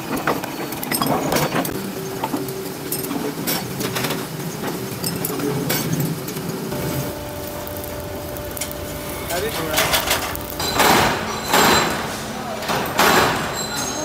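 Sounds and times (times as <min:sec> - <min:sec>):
machine hum: 0:01.7 - 0:13.8
steady tone: 0:06.7 - 0:12.4
metal clinks and knocks: 0:09.7 - 0:14.0.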